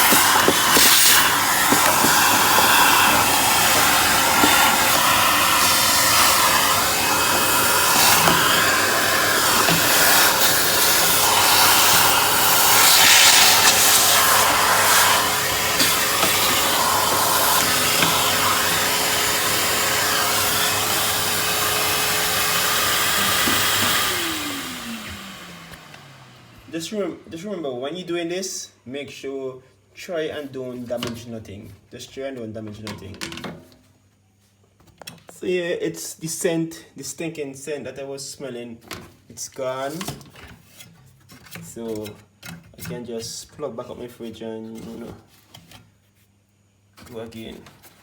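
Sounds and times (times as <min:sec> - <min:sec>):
vacuum cleaner running: 0:00.0 - 0:27.4.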